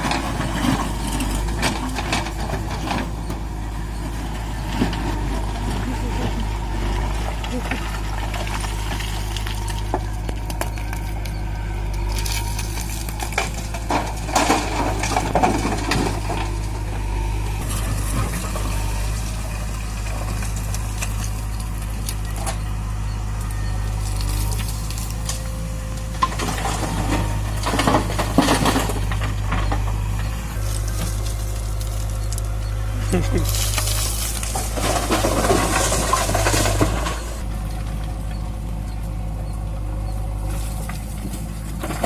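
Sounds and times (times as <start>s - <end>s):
tractor diesel engine rumbling: 0.0s - 42.0s
metallic rattling and clanking: 12.0s - 17.0s, 33.5s - 38.4s.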